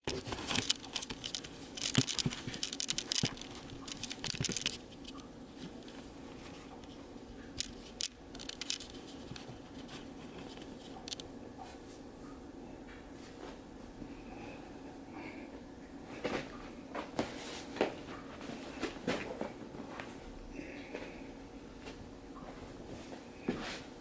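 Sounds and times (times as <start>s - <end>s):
rustling and scratching: 0.0s - 11.8s
steady low hum: 0.0s - 24.0s
scattered clicks: 7.6s - 9.5s, 10.6s - 11.3s.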